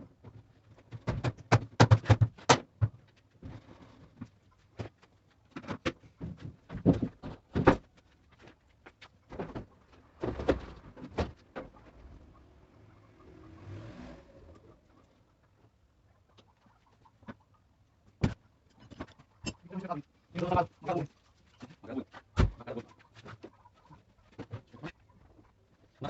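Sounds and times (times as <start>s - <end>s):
hard parts knocking and clattering: 18.1s - 20.7s.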